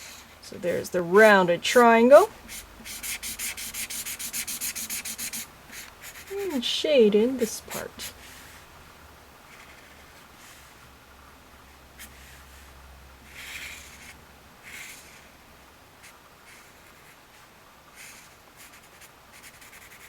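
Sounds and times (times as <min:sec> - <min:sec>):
pen scratching on paper: 0:01.2 - 0:06.6, 0:09.5 - 0:10.7, 0:13.3 - 0:15.3, 0:18.0 - 0:20.0.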